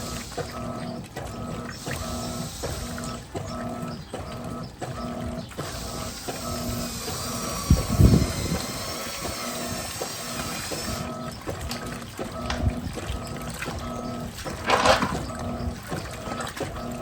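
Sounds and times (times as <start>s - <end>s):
washing machine motor humming: 0.0s - 17.0s
water sloshing: 0.0s - 17.0s.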